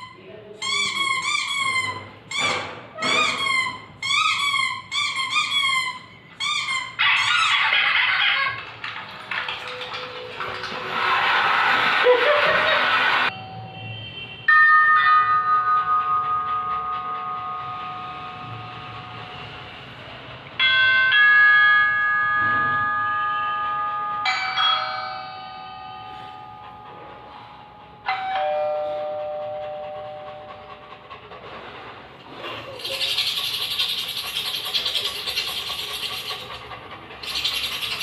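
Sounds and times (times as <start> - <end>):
doorbell chime: 13.3 - 19.4, 20.6 - 30.3.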